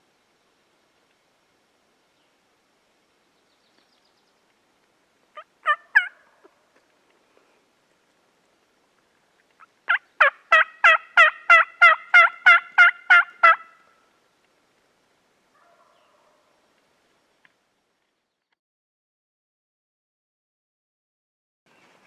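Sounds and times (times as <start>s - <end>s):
turkey yelping: 5.4s - 6.3s, 9.9s - 13.8s, 15.6s - 16.4s.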